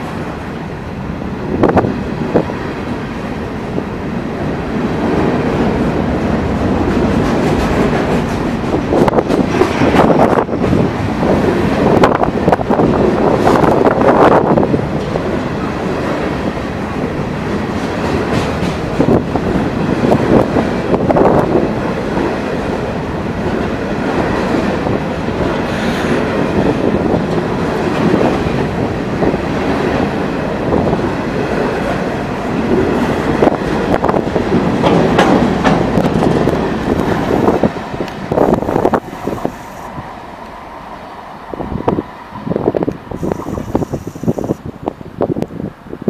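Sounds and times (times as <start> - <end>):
train wheels clacking over joints: 6.8 - 10.8, 34.0 - 37.1.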